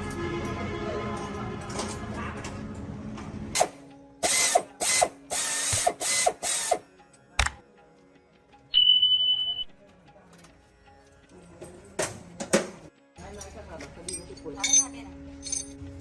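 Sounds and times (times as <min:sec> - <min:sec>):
high-pitched beep: 0:08.7 - 0:09.7.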